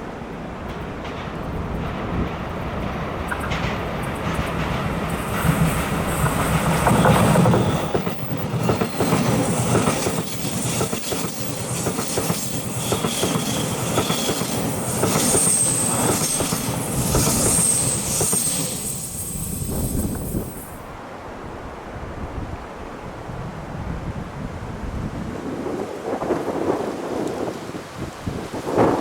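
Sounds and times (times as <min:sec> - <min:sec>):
train wheels rumbling and clicking: 0:00.6 - 0:20.8
high wheel squeal: 0:05.2 - 0:20.8.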